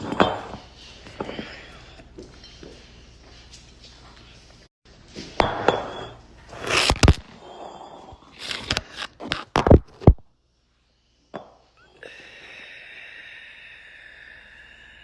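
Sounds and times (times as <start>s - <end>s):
rustling and scraping: 8.0s - 10.1s.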